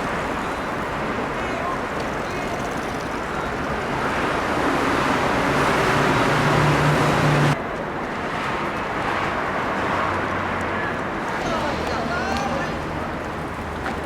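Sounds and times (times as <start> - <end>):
road noise: 0.0 - 14.0
vehicle passing close: 3.7 - 7.6.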